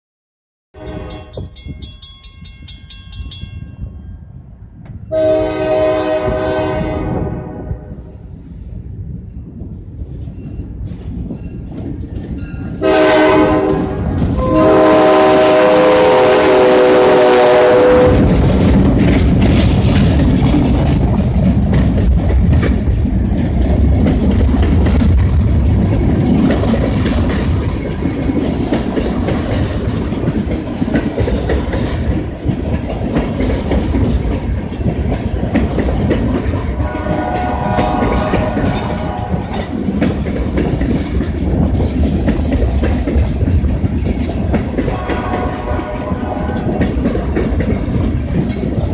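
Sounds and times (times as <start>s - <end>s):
train horn blasts: 0.8s - 1.5s, 5.1s - 8.1s, 12.8s - 18.4s, 36.7s - 39.7s, 44.8s - 47.0s
train rumbling past: 0.8s - 48.9s
wheels clacking over rail joints: 18.0s - 48.9s.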